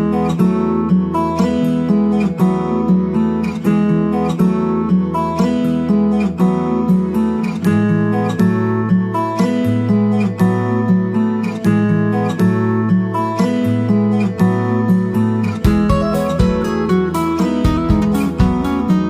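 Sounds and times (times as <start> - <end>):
acoustic guitar strumming: 0.0 - 19.0
steady bass line: 15.6 - 19.0.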